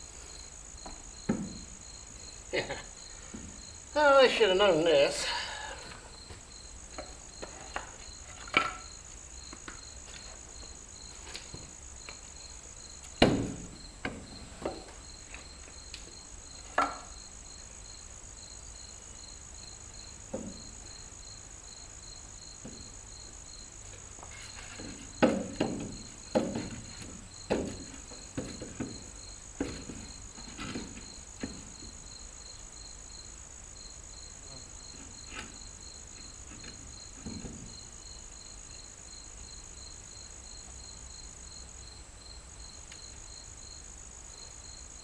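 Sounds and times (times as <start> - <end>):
crickets chirping: 0.0 - 45.0
knocks and taps on tire: 24.8 - 31.9.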